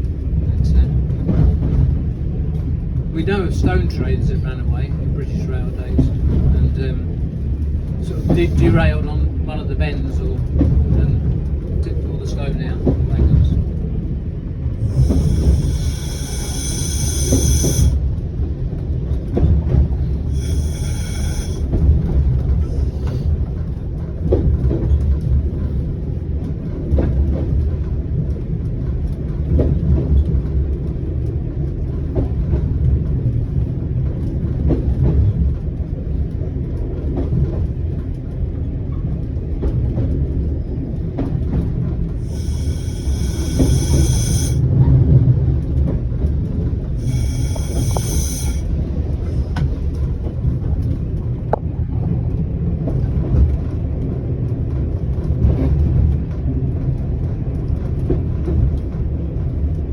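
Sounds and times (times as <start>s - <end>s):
diesel railcar rumble: 0.0s - 59.9s
high squeals: 14.8s - 18.0s, 20.3s - 21.7s, 42.2s - 44.6s, 47.0s - 48.7s.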